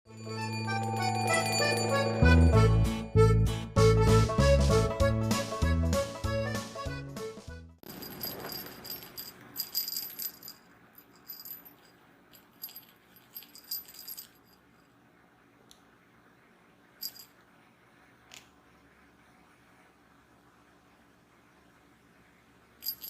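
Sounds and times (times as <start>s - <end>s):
jingly cat toy rattling: 7.9s - 14.5s, 17.0s - 17.3s.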